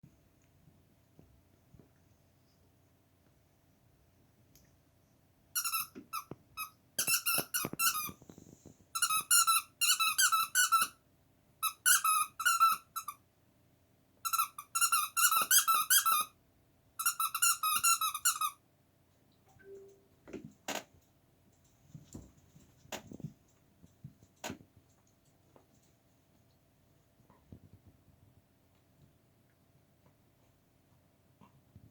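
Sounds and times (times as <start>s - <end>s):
squeaky dog toy squeaking: 5.6s - 8.2s, 9.0s - 11.0s, 11.6s - 13.2s, 14.2s - 16.4s, 17.0s - 18.6s.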